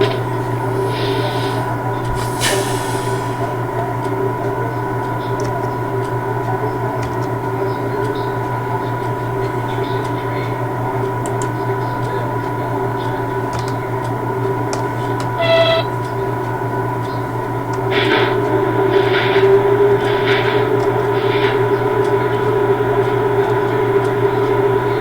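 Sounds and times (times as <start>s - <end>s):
train electrical humming drone: 0.0s - 25.0s
faint clicks: 5.0s - 12.2s.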